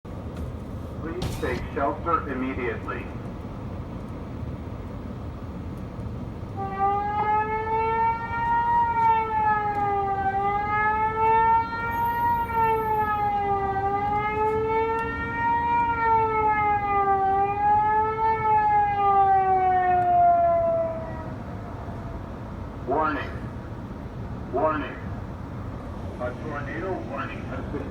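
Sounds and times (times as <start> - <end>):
low background rumble: 0.1 - 6.7
warning siren wailing: 6.5 - 23.6.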